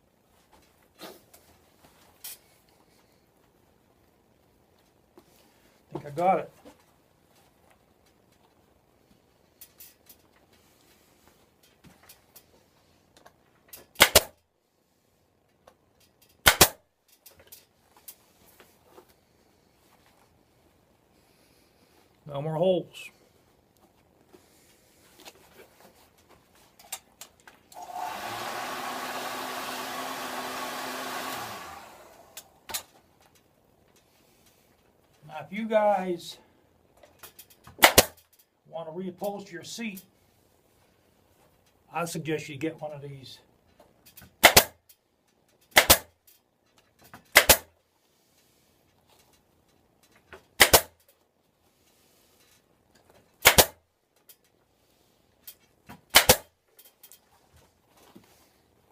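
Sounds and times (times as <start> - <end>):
staple gun firing: 14.0 - 14.3, 16.4 - 16.8, 37.8 - 38.2, 44.4 - 44.7, 45.7 - 46.1, 47.3 - 47.7, 50.6 - 50.9, 53.4 - 53.8, 56.1 - 56.5
heat gun blowing: 27.7 - 32.8
sharp clicks: 56.1 - 56.5.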